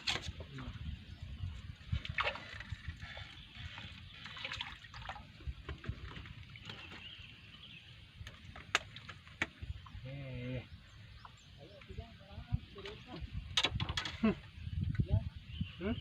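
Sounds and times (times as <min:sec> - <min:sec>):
water splashing and lapping: 0:01.8 - 0:07.2.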